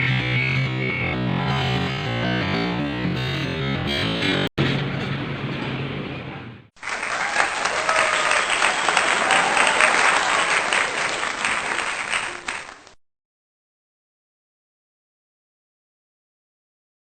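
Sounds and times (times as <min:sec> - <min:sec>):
music: 0:00.0 - 0:06.7
voices in crowd: 0:05.6 - 0:12.8
applause: 0:06.8 - 0:13.0.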